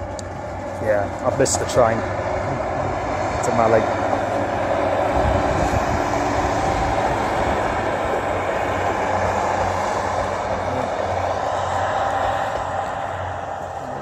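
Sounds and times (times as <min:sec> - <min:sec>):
low hum: 0:00.0 - 0:14.0
train running along the line: 0:00.0 - 0:14.0.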